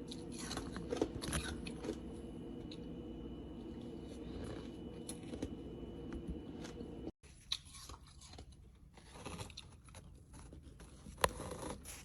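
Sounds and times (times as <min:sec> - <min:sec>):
ice being chewed: 0:00.0 - 0:12.0.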